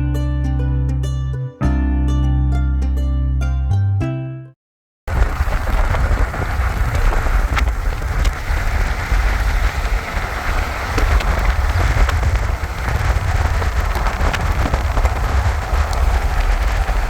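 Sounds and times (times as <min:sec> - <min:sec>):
background music: 0:00.0 - 0:04.6
heavy rain falling: 0:05.1 - 0:17.0
sharp raindrop hits: 0:05.1 - 0:17.0.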